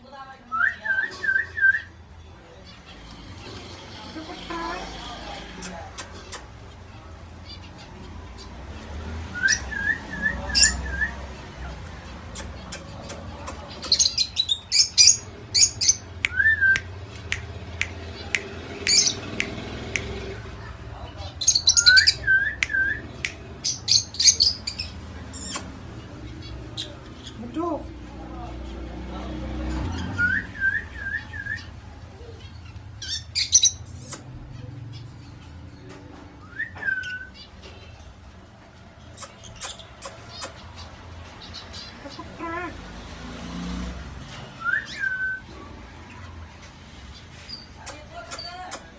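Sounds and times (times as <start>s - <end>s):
parakeet chirping and squawking: 10.5s - 16.2s, 17.6s - 22.3s, 23.0s - 27.5s, 31.6s - 35.6s, 39.0s - 42.9s.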